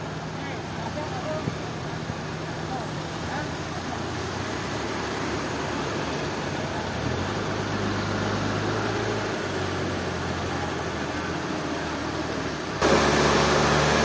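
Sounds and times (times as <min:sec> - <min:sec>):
machinery engine humming: 0:00.0 - 0:14.0.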